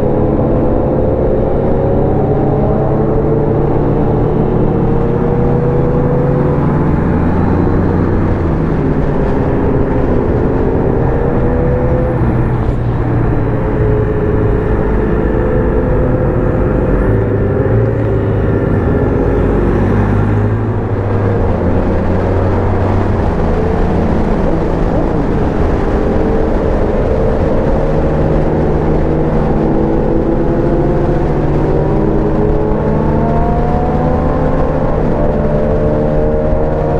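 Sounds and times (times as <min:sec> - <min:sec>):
road noise: 0:00.0 - 0:36.9
wind rush: 0:00.0 - 0:36.9
motorcycle engine running: 0:06.6 - 0:35.9.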